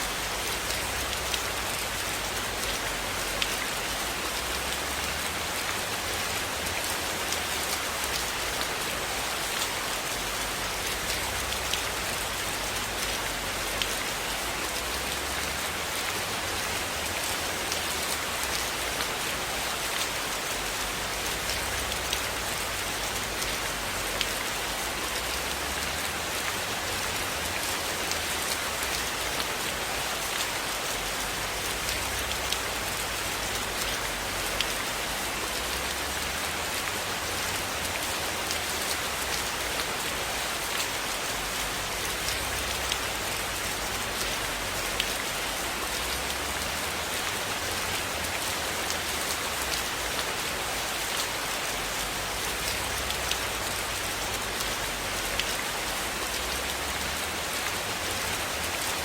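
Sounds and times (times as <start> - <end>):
rain on a roof: 0.0 - 59.0.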